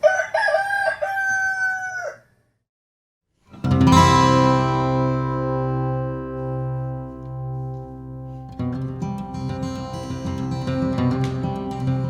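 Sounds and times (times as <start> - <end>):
rooster crowing: 0.0 - 2.3
acoustic guitar music: 3.4 - 12.0.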